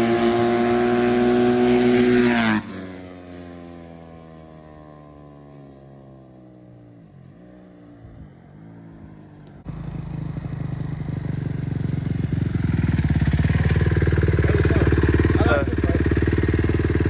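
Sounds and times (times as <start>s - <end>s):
dirt bike engine revving: 0.0s - 3.1s, 11.5s - 17.0s.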